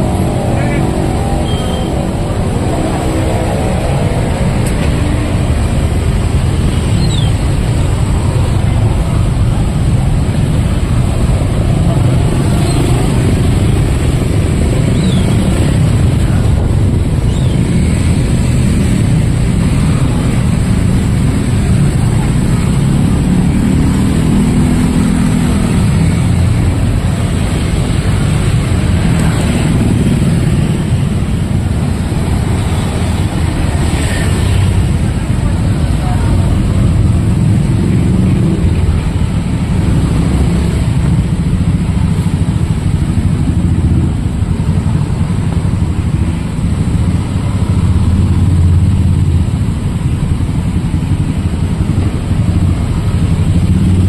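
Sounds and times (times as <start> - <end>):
motorcycles and cars passing: 0.0 - 54.0.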